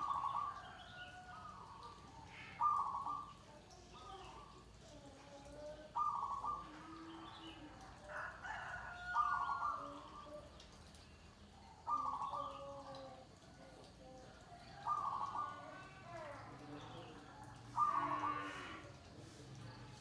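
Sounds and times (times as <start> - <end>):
doves cooing: 0.0 - 3.5, 5.9 - 10.6, 11.6 - 13.6, 14.2 - 19.1.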